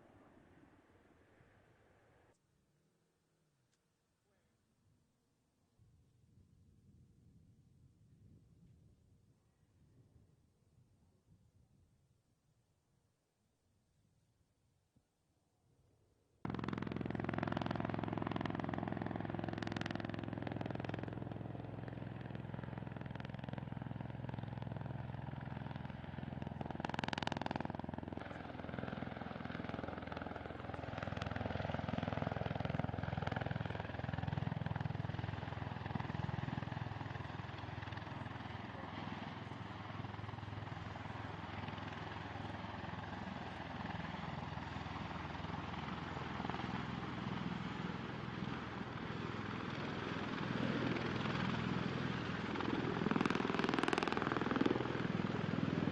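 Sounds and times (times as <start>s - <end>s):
aircraft engines and rotors droning: 0.0s - 2.4s, 16.5s - 55.9s.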